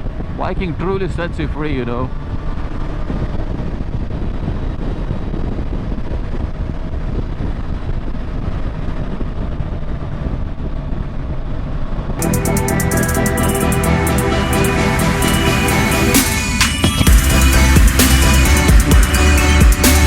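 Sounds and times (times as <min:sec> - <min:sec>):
wind noise: 0:00.0 - 0:11.3
motorcycle engine and road rumble: 0:00.0 - 0:12.2
electronic music: 0:12.2 - 0:20.0.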